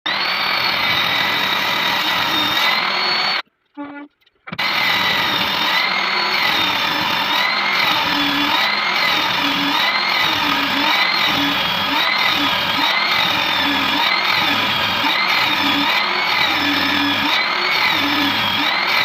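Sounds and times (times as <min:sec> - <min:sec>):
power tool whining: 0:00.1 - 0:19.0
short pitched tone: 0:03.8 - 0:04.2.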